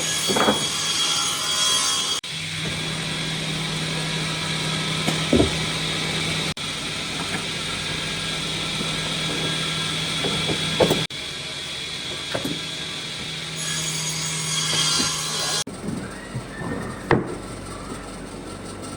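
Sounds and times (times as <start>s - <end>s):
wood knocks: 5.1s - 5.8s.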